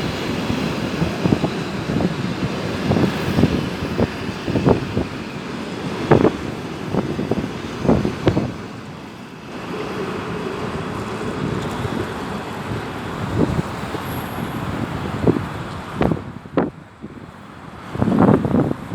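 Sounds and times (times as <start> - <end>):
wheels rushing on rail: 0.0 - 18.9.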